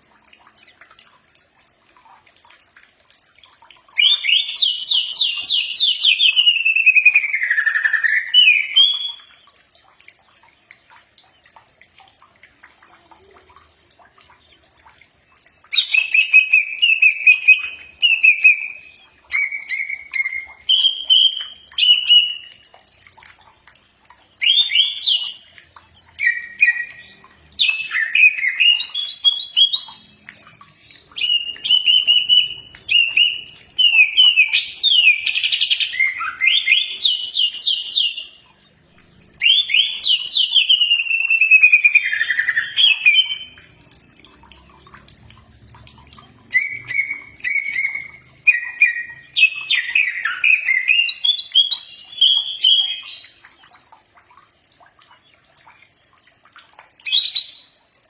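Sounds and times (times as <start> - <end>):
bird singing whistled chirps and trills: 4.0 - 9.4, 15.3 - 22.8, 24.4 - 43.8, 46.4 - 53.7, 57.0 - 57.7.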